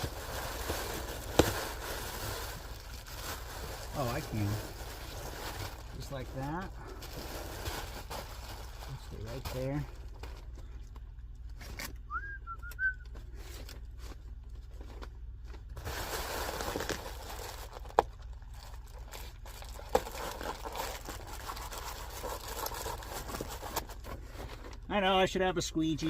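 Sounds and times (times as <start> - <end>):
tape crinkling and rustling: 0.0 - 12.2, 13.0 - 25.0
gliding whistle: 12.1 - 13.0.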